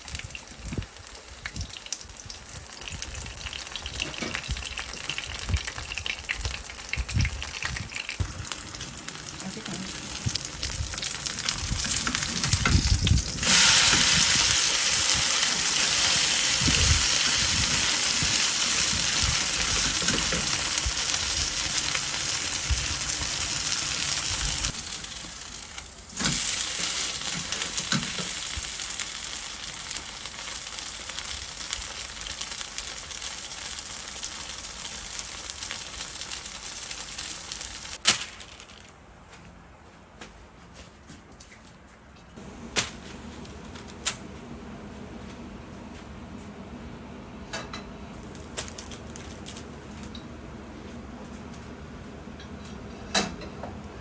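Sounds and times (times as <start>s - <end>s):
food sizzling in oil: 0.0s - 38.0s.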